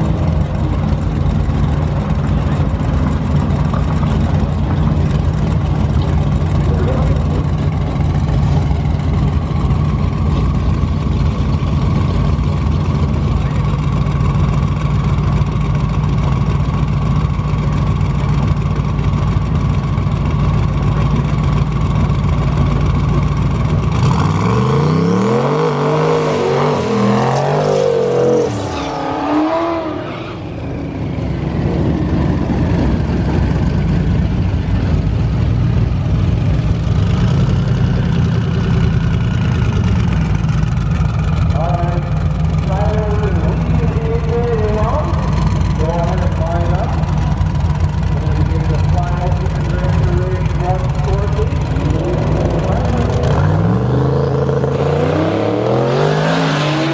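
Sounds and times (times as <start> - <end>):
car engine running steadily: 0.0 - 56.9
car accelerating hard: 22.0 - 34.5, 41.3 - 56.9.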